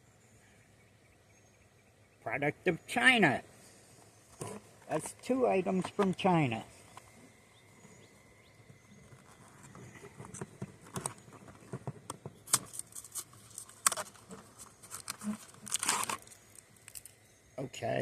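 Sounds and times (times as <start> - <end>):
cardboard box clicks and crinkles: 9.1 - 17.1
packaging tearing and rustling: 12.5 - 17.1.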